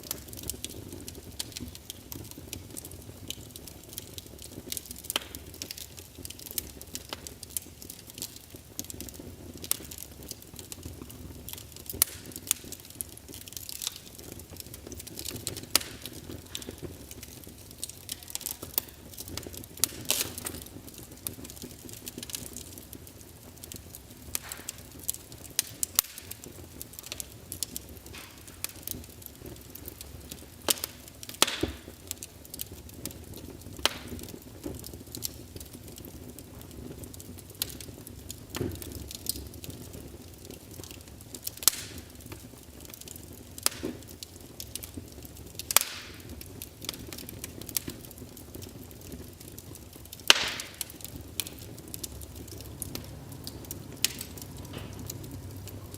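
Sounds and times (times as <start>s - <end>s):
sharp pops from fire: 0.0s - 55.9s
wood fire crackling: 0.0s - 55.9s.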